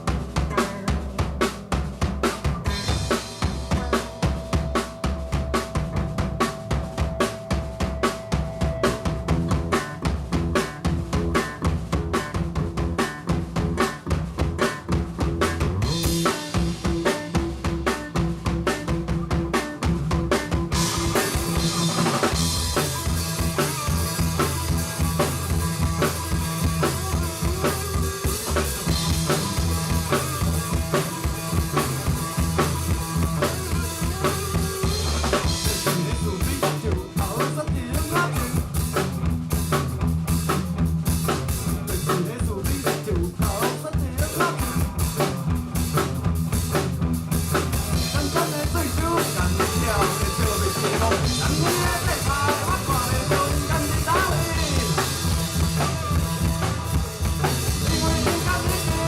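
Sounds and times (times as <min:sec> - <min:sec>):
drum kit: 0:00.0 - 0:59.0
live band playing: 0:00.0 - 0:59.0
low bass notes: 0:00.0 - 0:59.0.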